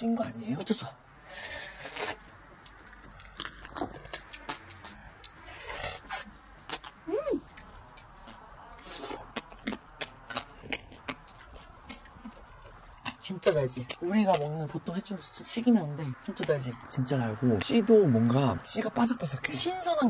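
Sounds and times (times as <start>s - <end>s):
wet slurping and chewing: 1.3s - 18.4s
seeds cracking between teeth: 2.6s - 15.0s.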